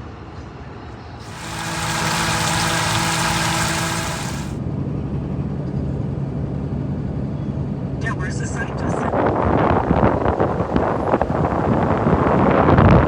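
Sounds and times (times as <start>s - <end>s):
loud hiss: 1.2s - 4.6s
vehicle engine idling: 1.2s - 4.6s.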